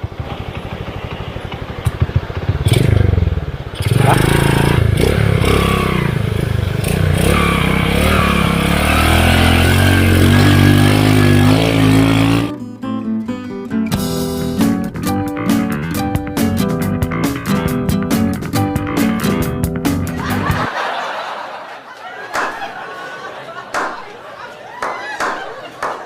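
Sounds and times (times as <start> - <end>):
motorcycle engine idling and revving: 0.0 - 12.5.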